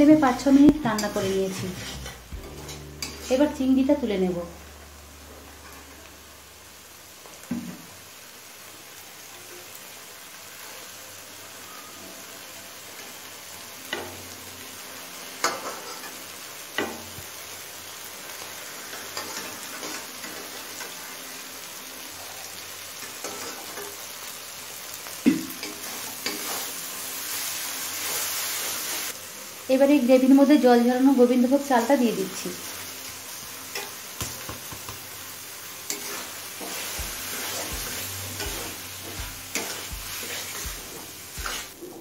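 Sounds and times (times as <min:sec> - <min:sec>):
gravy sizzling in a metal pan: 0:00.0 - 0:42.0
metal spatula scraping a pan: 0:00.1 - 0:04.0, 0:15.4 - 0:16.2, 0:23.0 - 0:24.0, 0:25.5 - 0:26.8, 0:35.8 - 0:42.0.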